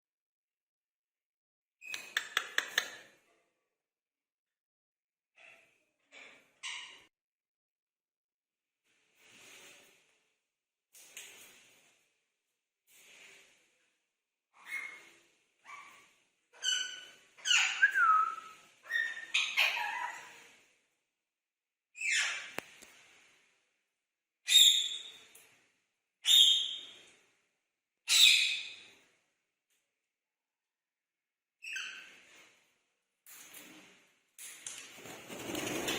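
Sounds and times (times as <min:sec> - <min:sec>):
parakeet shrill calls: 0:16.6 - 0:20.2.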